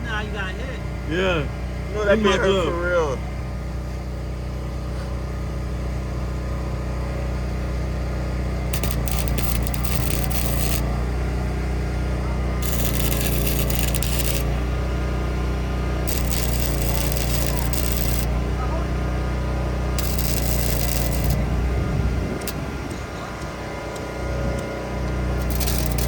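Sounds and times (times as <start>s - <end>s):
arc welder crackling: 8.5s - 26.0s
welder low hum: 8.6s - 26.0s.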